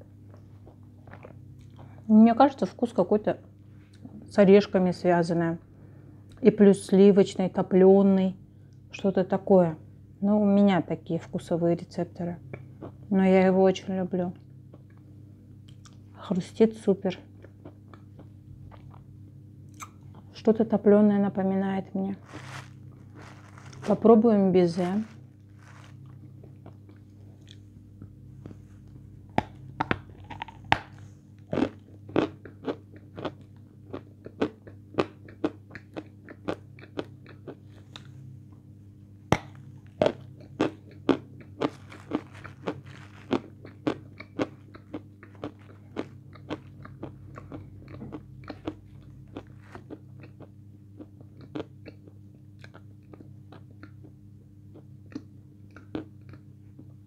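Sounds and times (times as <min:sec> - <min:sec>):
crunchy chewing of meringue: 0:00.2 - 0:02.0, 0:22.1 - 0:27.8, 0:28.4 - 0:38.2, 0:39.3 - 0:57.0.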